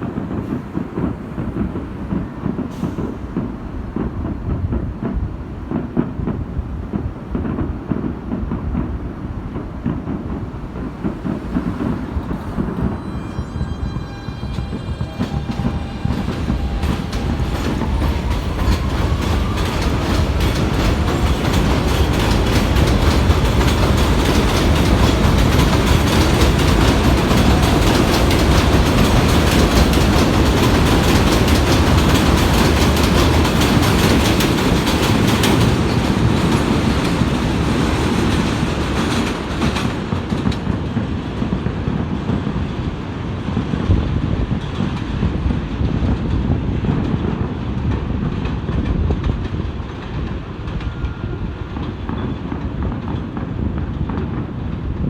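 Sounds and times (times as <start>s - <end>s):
clickety-clack over rail joints: 0.0s - 55.0s
train wheel and rail noise: 0.0s - 55.0s
subway train motor whine: 10.4s - 39.9s.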